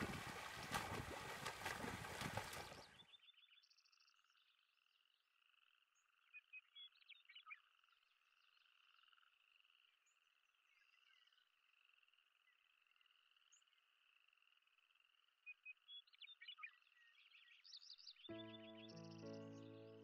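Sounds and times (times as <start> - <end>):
water splashing: 0.0 - 3.0.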